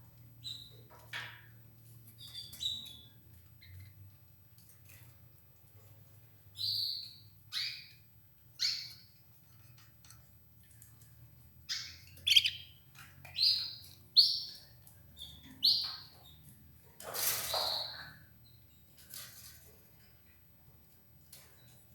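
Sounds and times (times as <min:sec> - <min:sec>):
canary chirping: 0:00.4 - 0:01.3, 0:02.1 - 0:04.0, 0:06.5 - 0:09.9, 0:11.6 - 0:16.6, 0:17.5 - 0:19.0
harsh canary call: 0:12.2 - 0:12.7.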